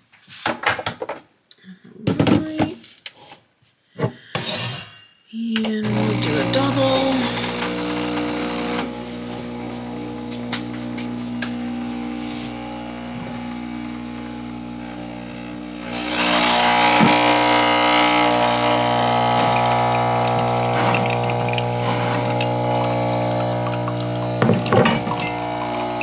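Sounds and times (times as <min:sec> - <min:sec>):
espresso pump humming: 0:05.8 - 0:26.0
coffee hissing and gurgling: 0:05.9 - 0:26.0.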